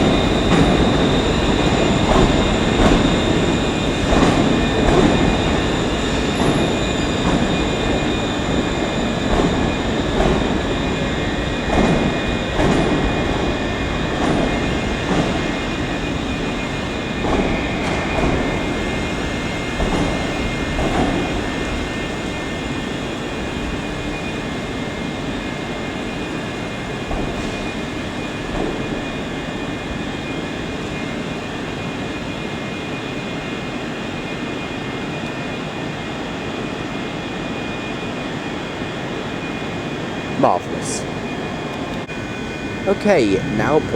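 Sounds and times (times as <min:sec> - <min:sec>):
electric train hum and hiss: 0:00.0 - 0:43.9.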